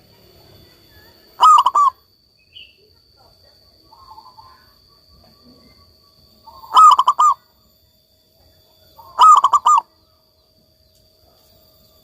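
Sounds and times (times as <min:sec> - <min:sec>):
dove cooing: 0:01.4 - 0:02.0, 0:03.8 - 0:07.5, 0:08.8 - 0:10.0.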